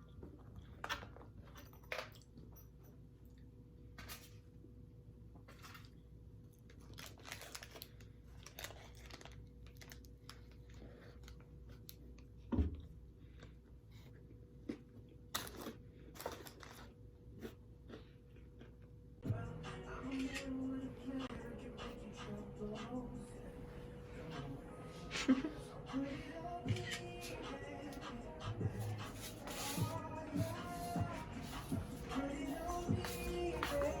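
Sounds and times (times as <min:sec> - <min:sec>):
faint steady hum: 0:01.4 - 0:34.0
rustling and crinkling handling: 0:06.7 - 0:12.3.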